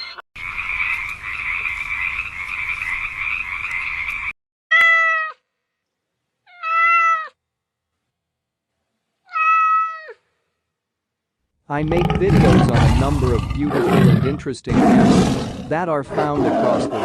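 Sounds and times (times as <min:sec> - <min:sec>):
cat meowing: 0:06.5 - 0:07.4, 0:09.3 - 0:10.2.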